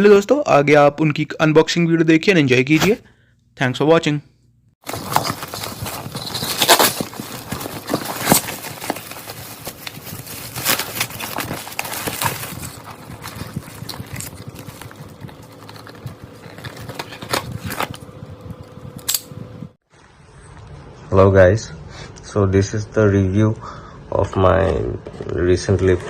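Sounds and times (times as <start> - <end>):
rustling noise: 4.8 - 18.9.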